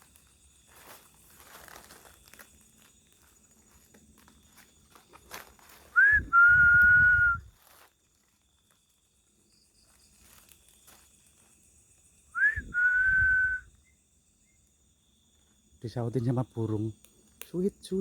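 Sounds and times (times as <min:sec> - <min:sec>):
person whistling: 0:06.0 - 0:07.5, 0:12.4 - 0:13.7.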